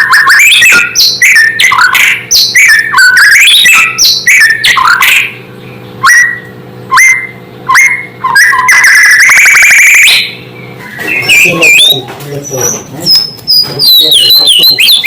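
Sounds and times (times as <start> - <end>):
bird rising trill: 0.0 - 15.0
bird singing whistled notes: 0.0 - 15.0.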